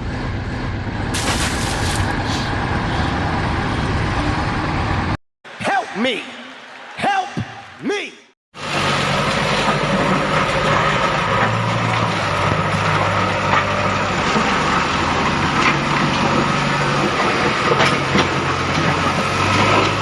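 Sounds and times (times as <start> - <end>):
low vehicle engine rumble: 0.0 - 5.2.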